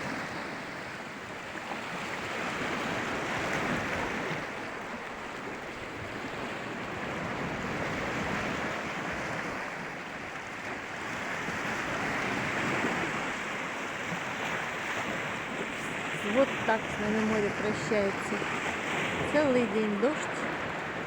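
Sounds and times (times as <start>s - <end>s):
sea surf breaking: 0.0s - 21.0s.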